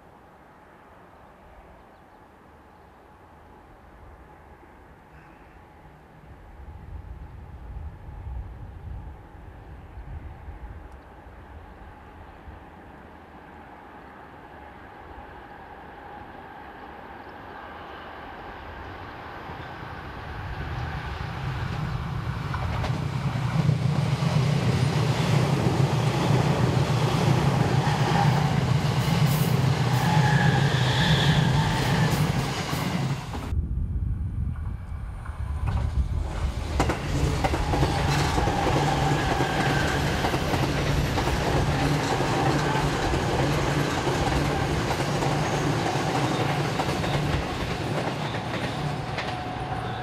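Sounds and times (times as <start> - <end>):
electric train passing: 5.7 - 50.0
rail clatter: 21.8 - 30.5, 35.6 - 50.0.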